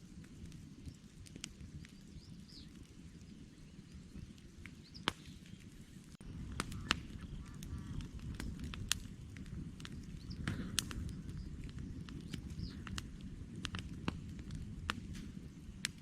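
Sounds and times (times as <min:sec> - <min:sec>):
campfire crackling and popping: 0:00.0 - 0:16.0
faint bird call: 0:04.9 - 0:08.1.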